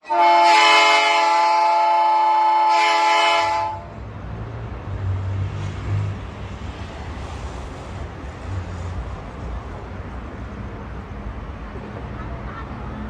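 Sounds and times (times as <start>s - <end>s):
locomotive air horn blast: 0.0s - 3.9s
diesel locomotive engine rumble: 0.0s - 13.0s.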